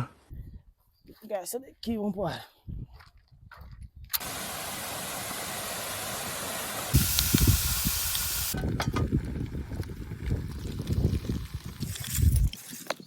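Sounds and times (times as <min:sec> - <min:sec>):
steady hiss: 0:04.2 - 0:08.6.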